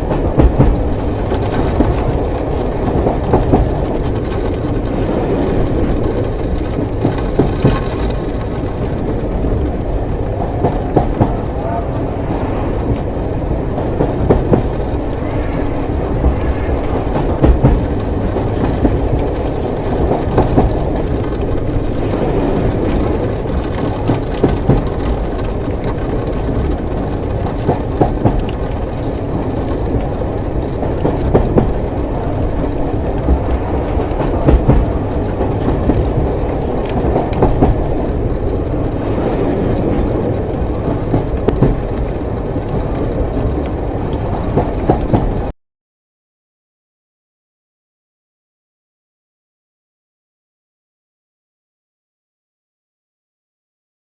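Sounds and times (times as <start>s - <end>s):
train rumbling on rails: 0.0s - 45.5s
wheel knocks: 6.0s - 9.7s, 17.2s - 21.8s, 30.8s - 38.1s.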